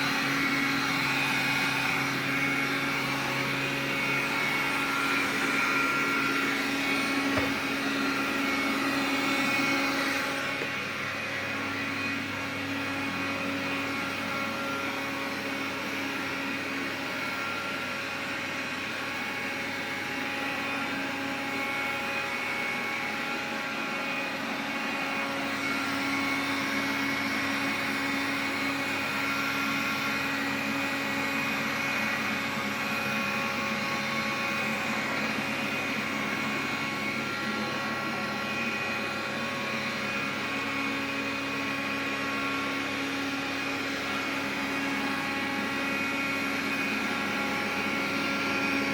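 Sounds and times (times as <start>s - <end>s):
vacuum cleaner motor whine: 0.0s - 48.9s.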